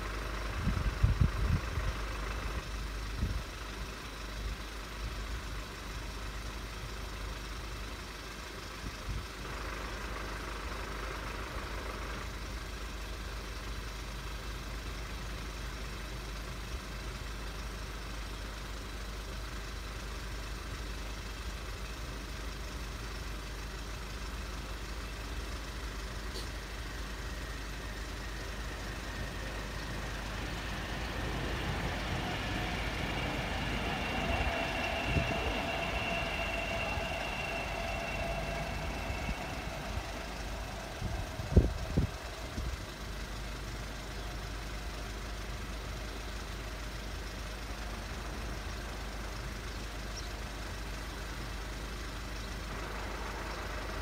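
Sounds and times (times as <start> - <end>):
train rumbling past: 0.0 - 7.8, 21.3 - 54.0.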